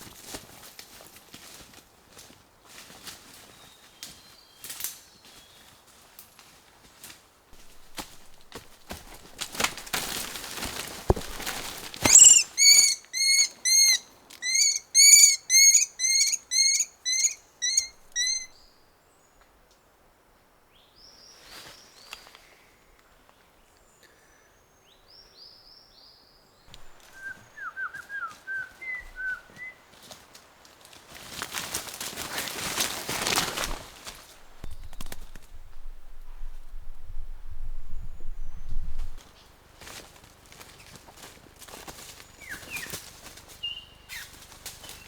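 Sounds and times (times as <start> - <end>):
rustling: 6.0 - 13.2, 26.7 - 45.0
bird calling loudly: 12.0 - 18.6
faint bird chirps: 12.0 - 19.4.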